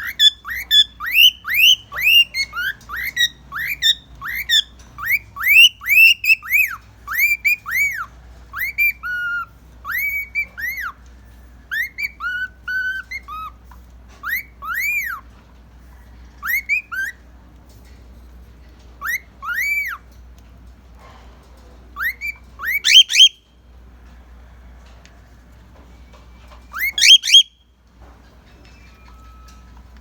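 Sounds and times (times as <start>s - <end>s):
cockatiel whistling: 0.0s - 11.0s, 11.7s - 13.6s, 14.2s - 15.2s, 16.4s - 17.2s, 19.0s - 20.0s, 22.0s - 23.4s, 26.7s - 27.6s.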